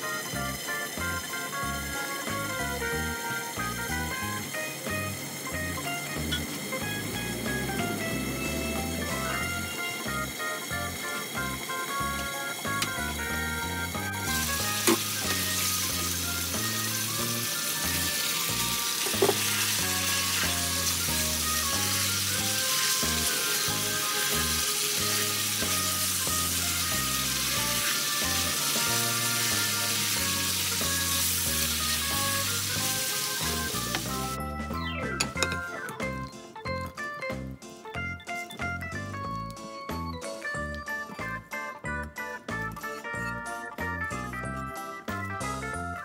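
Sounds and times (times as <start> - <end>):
chicken sizzling in a wok: 0.0 - 34.5
background music: 0.0 - 46.0.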